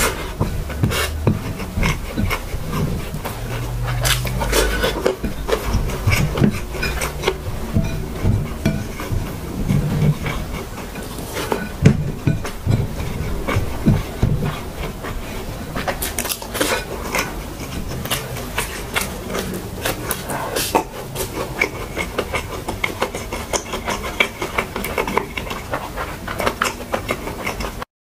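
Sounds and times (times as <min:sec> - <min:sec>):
person chewing and lip smacking: 0:00.0 - 0:11.7, 0:15.8 - 0:27.8
fingers tapping china plate: 0:00.0 - 0:15.0.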